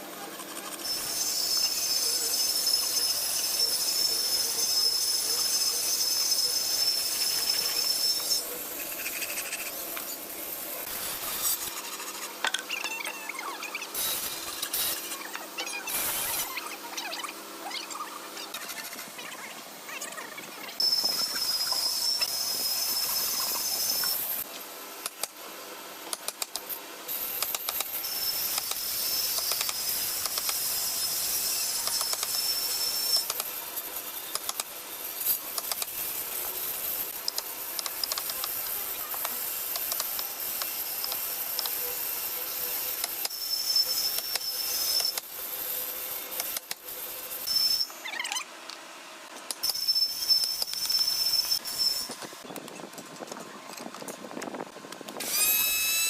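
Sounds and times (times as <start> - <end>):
power tool working wood: 0.4 - 12.7, 13.6 - 16.6, 20.8 - 24.5, 27.1 - 48.0, 55.2 - 56.0.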